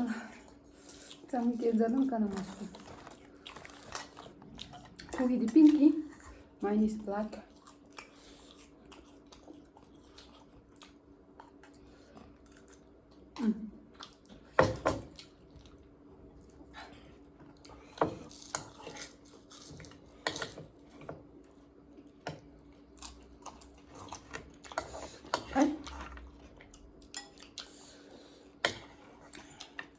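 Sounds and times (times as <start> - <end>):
low hum of a voice: 0.0 - 0.6, 5.1 - 7.6, 13.3 - 13.9, 25.3 - 26.1
chewing: 2.3 - 6.5, 7.4 - 12.9, 15.1 - 29.9.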